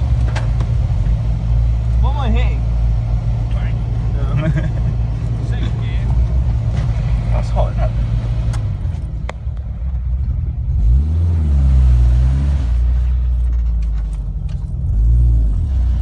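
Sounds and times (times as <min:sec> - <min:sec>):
car engine revving in mud: 0:10.6 - 0:13.5, 0:14.8 - 0:16.0.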